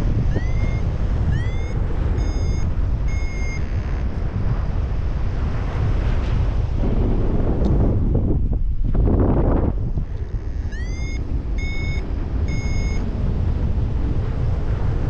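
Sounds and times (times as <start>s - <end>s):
strong wind on microphone: 0.0s - 15.0s
variometer beeps rising in pitch: 0.1s - 4.1s, 10.2s - 13.0s.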